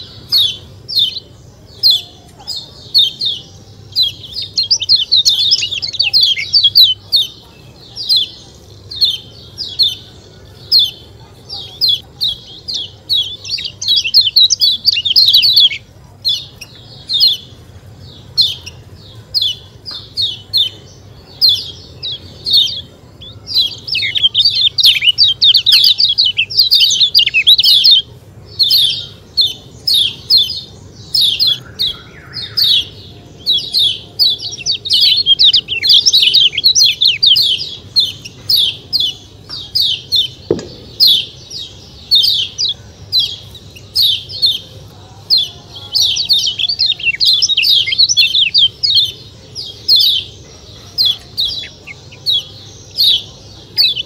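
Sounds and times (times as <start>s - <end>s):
bird chirping quickly: 18.2s - 44.7s.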